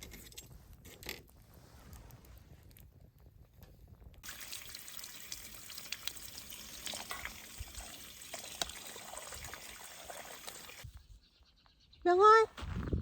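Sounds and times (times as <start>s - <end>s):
water hissing: 4.2s - 10.8s
small splashes and clicks: 5.3s - 10.8s.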